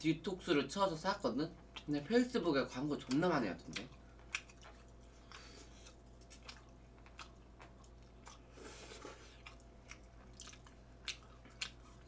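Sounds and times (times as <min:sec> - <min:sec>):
people chewing noodles: 0:03.0 - 0:12.0.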